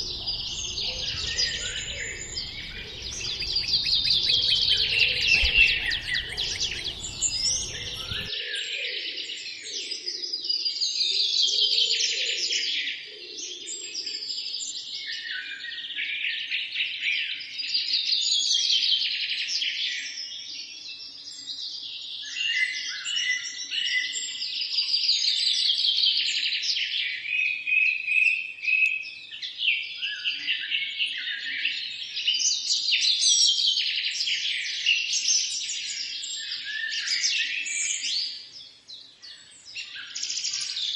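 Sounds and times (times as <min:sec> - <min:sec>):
low rumble: 0:00.0 - 0:08.3
songbirds singing: 0:00.0 - 0:08.7.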